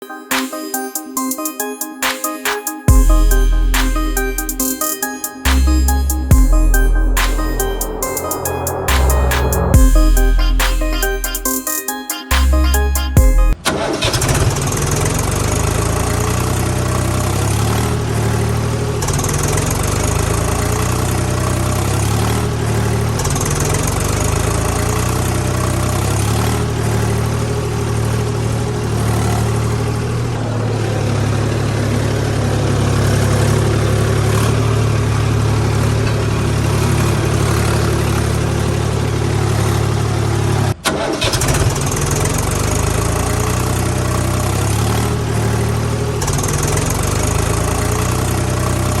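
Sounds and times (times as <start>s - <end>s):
tractor engine idling: 27.3s - 49.0s.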